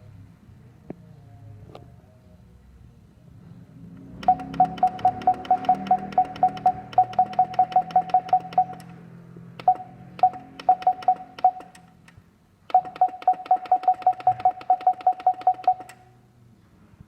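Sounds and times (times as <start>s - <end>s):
key press clicks: 4.2s - 9.0s, 9.6s - 16.0s
short keypad beeps: 4.2s - 9.0s, 9.6s - 11.9s, 12.7s - 16.1s.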